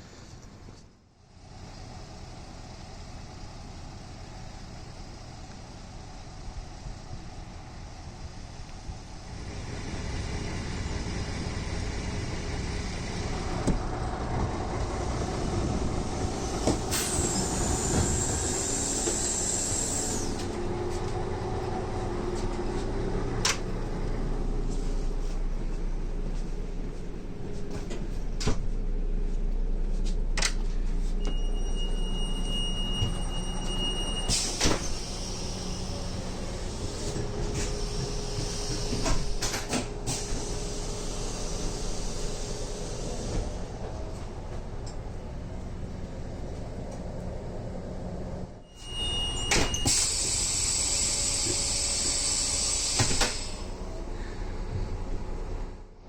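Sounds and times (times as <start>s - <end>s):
diesel railbus engine running: 0.0s - 56.0s
sliding doors closing with bang and hiss: 14.9s - 20.6s, 32.6s - 44.5s, 48.8s - 53.9s
high warning beep: 31.2s - 34.3s, 48.7s - 49.9s.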